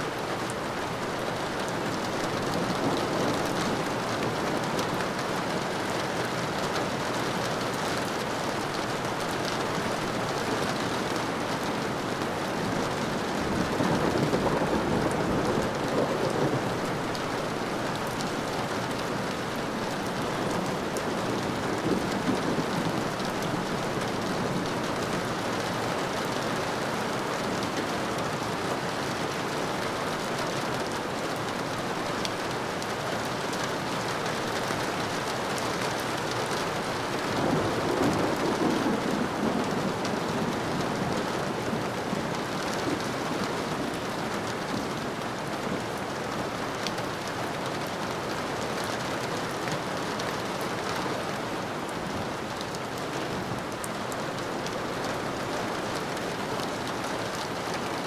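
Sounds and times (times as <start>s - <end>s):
steady rain hissing: 0.0s - 58.0s
thunder rumbling: 12.8s - 18.6s, 19.4s - 25.4s, 36.8s - 43.9s.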